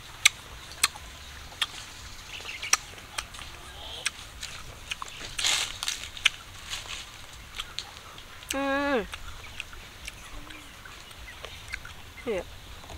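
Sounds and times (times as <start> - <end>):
faint bird calls: 0.8 - 12.9
crisp crunching of mango: 2.6 - 10.3.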